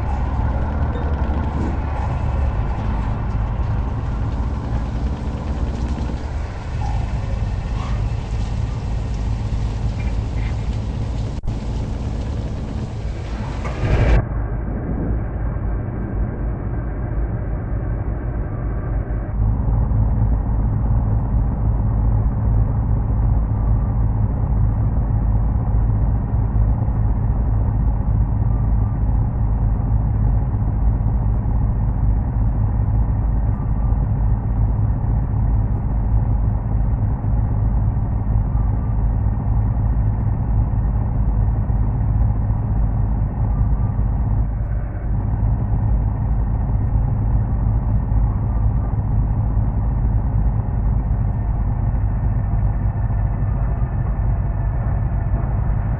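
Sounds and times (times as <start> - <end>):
heavy truck driving: 0.0 - 15.8.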